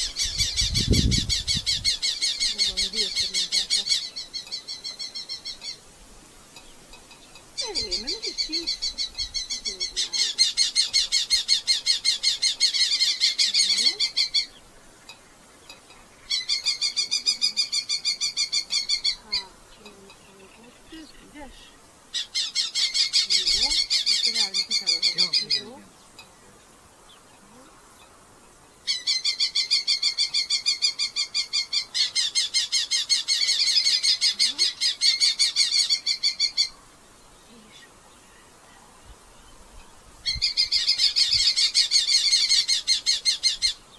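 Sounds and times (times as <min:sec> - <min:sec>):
falcons calling in sharp chatter: 0:00.0 - 0:05.8, 0:07.3 - 0:15.2, 0:15.8 - 0:25.9, 0:28.8 - 0:36.8.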